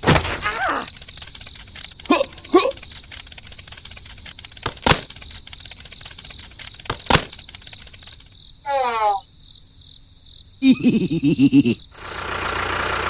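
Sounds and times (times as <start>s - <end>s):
insect-like chirring: 0.0s - 12.0s
sharp click: 0.1s - 8.4s.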